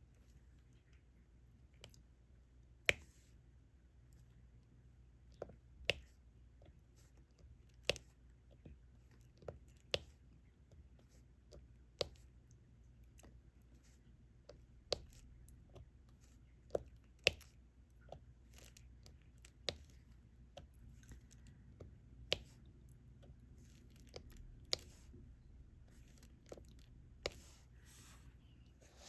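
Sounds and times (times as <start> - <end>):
stylus tapping and clicking: 14.4 - 27.6
soft rustling: 19.7 - 29.0.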